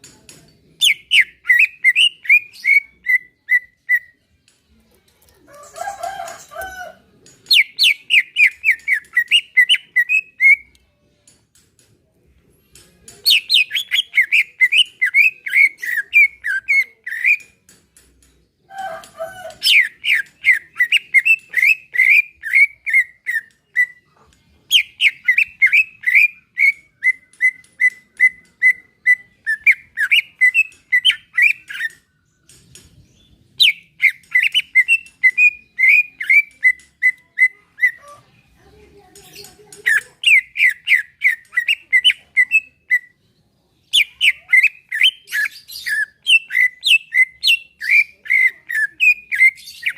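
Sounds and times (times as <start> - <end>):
bird chirping and whistling: 0.8 - 4.1, 7.5 - 10.7, 13.3 - 17.5, 19.4 - 24.0, 24.7 - 32.0, 33.6 - 38.0, 39.9 - 43.1, 43.9 - 49.9.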